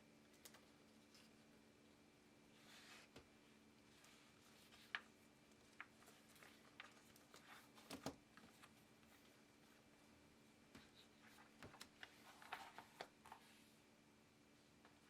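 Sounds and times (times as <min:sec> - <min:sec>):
faint steady hum: 0:00.0 - 0:15.0
small clicks and handling noises: 0:00.2 - 0:01.4, 0:04.0 - 0:09.4, 0:10.7 - 0:13.5.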